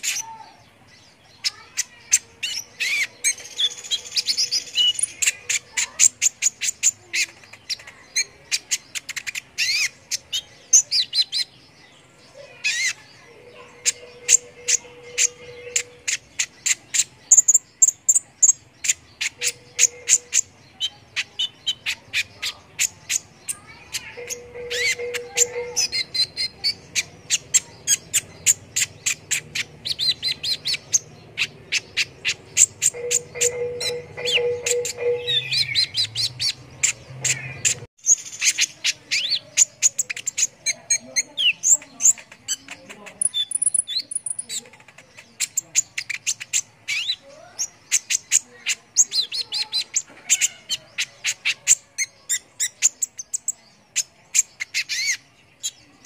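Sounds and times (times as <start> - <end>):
sunbird chirping: 0.0 - 56.0.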